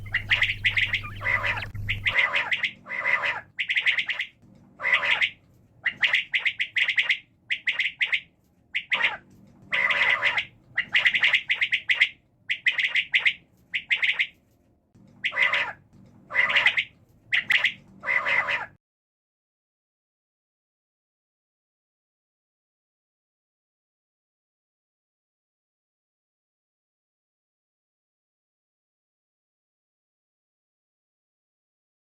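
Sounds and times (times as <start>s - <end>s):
quail calling: 0.0s - 8.2s, 8.8s - 14.3s, 15.2s - 18.8s.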